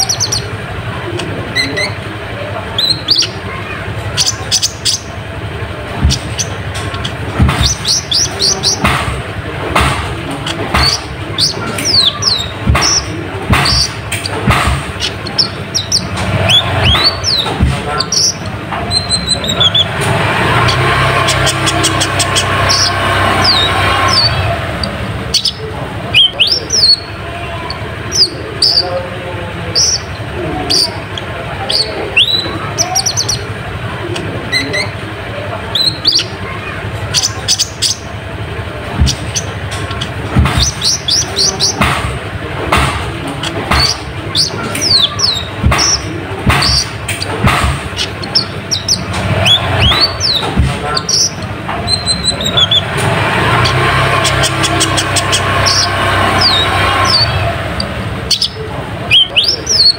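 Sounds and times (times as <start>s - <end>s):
bird chirping: 0.0s - 42.1s, 42.7s - 59.9s
dull thumps: 5.8s - 24.4s, 35.9s - 57.2s
bird chirping high quick notes: 15.0s - 28.9s.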